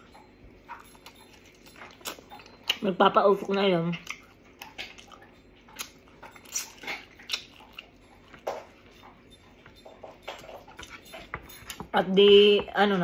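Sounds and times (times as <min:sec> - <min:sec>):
wet chewing of meat: 0:00.0 - 0:11.9.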